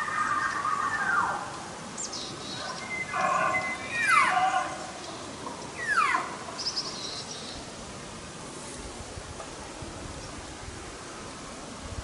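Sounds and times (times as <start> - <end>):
elk bugling: 3.0 - 4.8.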